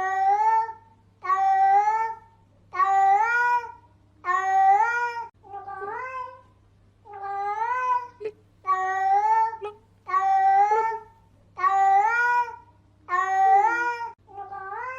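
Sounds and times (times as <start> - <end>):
faint low hum: 0.0 - 14.9
cat meowing: 2.8 - 6.4, 7.1 - 14.9.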